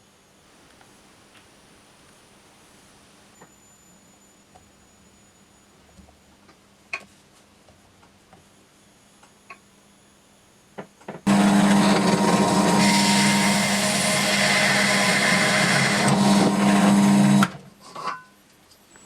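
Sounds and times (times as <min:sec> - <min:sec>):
power tool humming: 0:11.3 - 0:17.6.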